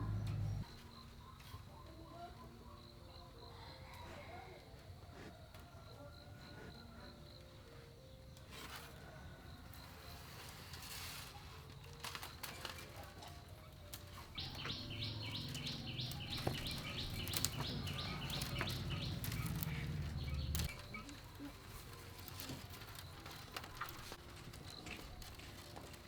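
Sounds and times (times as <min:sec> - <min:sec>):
low rumble: 0:00.0 - 0:00.7, 0:15.1 - 0:20.7
small bird calling: 0:14.2 - 0:21.6.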